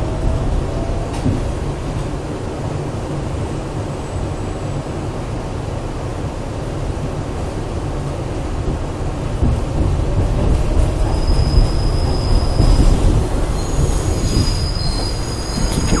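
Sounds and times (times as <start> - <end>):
subway train rumbling on rails: 0.0 - 16.0
train wheels squealing: 10.8 - 16.0.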